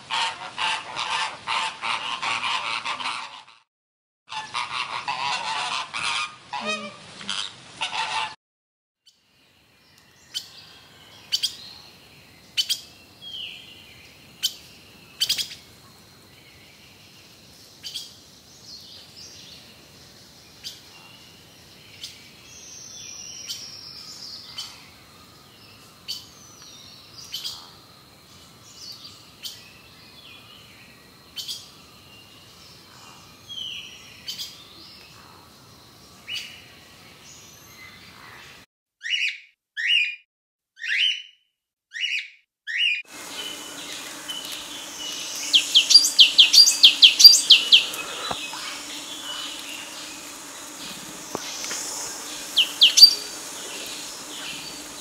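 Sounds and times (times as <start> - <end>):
bird honking calls: 4.3 - 8.4, 43.2 - 55.0
faint outdoor hiss: 9.1 - 38.6, 43.1 - 55.0
bird chirps and whistles: 45.1 - 48.0, 52.5 - 54.8.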